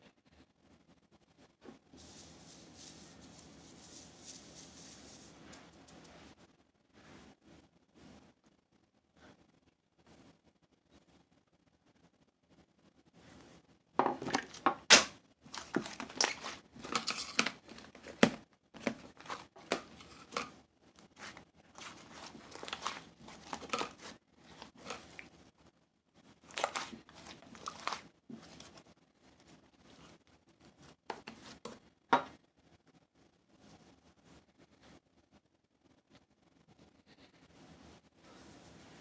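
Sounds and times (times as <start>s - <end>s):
material crinkling and rustling: 1.9s - 6.4s, 14.1s - 31.9s.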